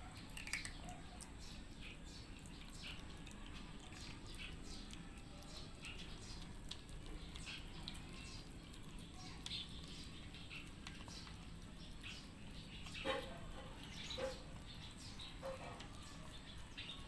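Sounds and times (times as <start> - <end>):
cats chewing food: 0.0 - 17.0.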